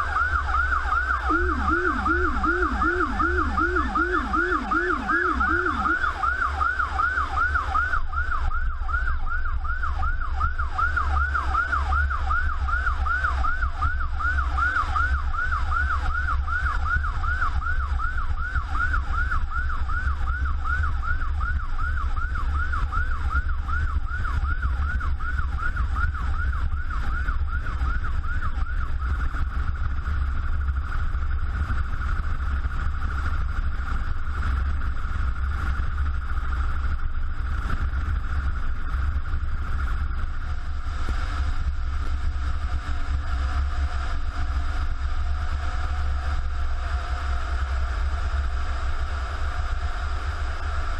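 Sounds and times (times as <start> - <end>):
siren yelping: 0.0 - 29.2
lower-pitched siren: 0.0 - 50.9
vehicle rumble: 0.0 - 50.9.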